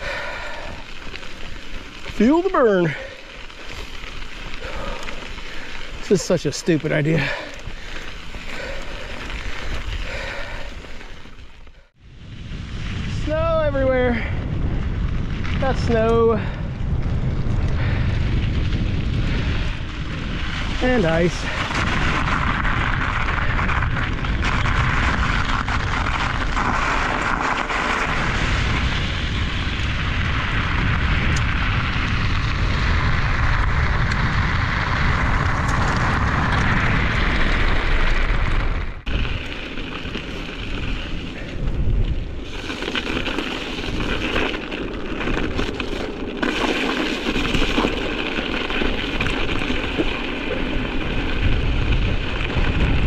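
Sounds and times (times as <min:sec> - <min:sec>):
wind buffeting microphone: 0:12.0 - 0:26.9, 0:40.3 - 0:43.2, 0:48.7 - 0:53.0.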